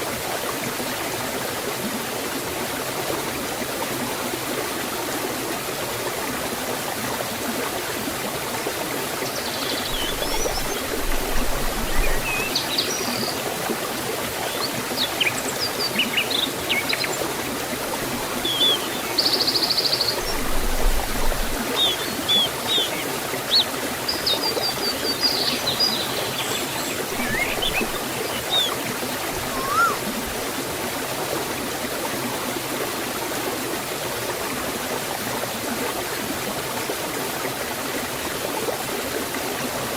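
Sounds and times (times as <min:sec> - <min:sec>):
waterfall and stream rushing: 0:00.0 - 0:39.9
small birds chirping: 0:09.4 - 0:13.4, 0:14.4 - 0:17.3, 0:18.2 - 0:30.1.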